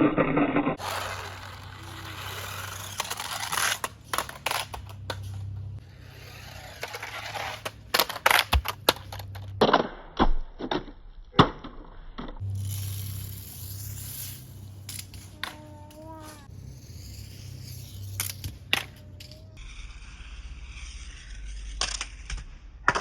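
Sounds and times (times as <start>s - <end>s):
toy cars rolling on plastic: 0.8s - 9.5s, 12.4s - 22.4s
steady low hum: 0.8s - 9.6s.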